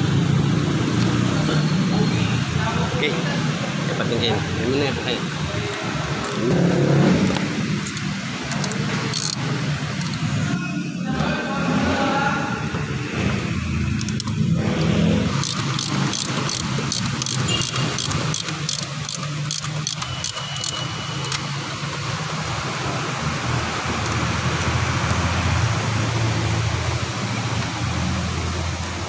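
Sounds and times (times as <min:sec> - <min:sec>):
car engine running: 0:03.6 - 0:10.5, 0:12.9 - 0:29.0
sharp clicks: 0:07.3 - 0:10.3, 0:13.9 - 0:21.5.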